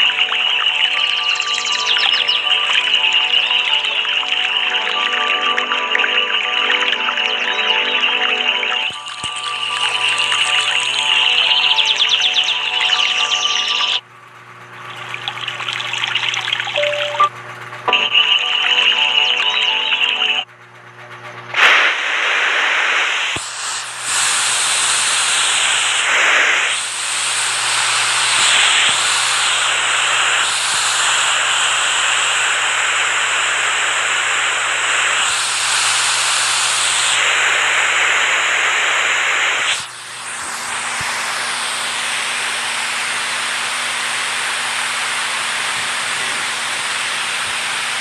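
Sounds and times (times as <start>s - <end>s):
dull steady water rush: 0.0s - 20.4s
rushing water spray: 21.6s - 33.6s.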